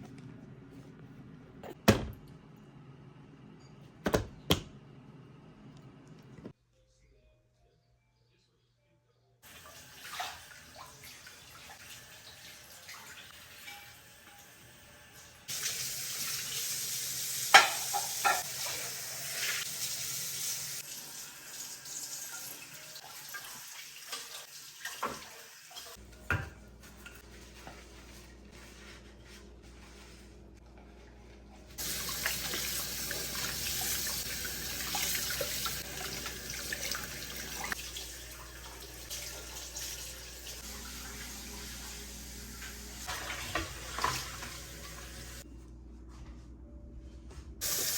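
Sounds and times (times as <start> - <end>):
tap water running into sink: 15.5 - 26.5, 31.8 - 45.4.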